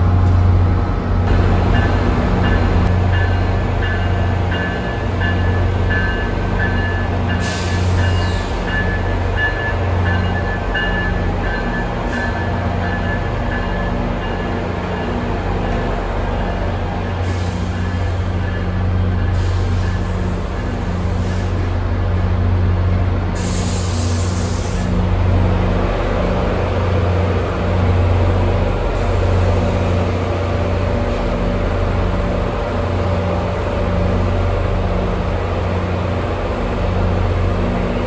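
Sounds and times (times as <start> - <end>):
train rolling past: 0.0 - 38.0
hiss of air: 23.4 - 24.9.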